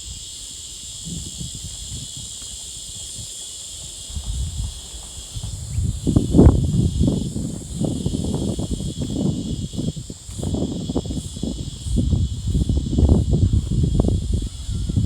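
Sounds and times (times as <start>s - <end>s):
high-pitched insect chorus: 0.0s - 15.0s
rumbling thumps on microphone: 3.8s - 15.0s.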